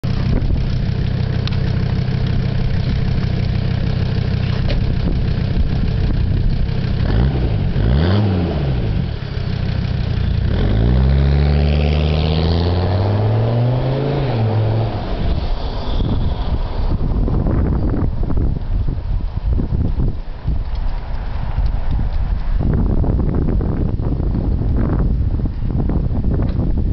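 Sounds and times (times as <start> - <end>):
diesel engine idling and revving: 0.0 - 19.2.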